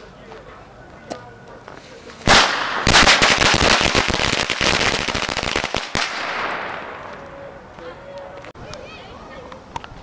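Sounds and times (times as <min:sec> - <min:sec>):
firework crackling pops: 0:02.2 - 0:07.2
loud firework crack: 0:02.2 - 0:07.2.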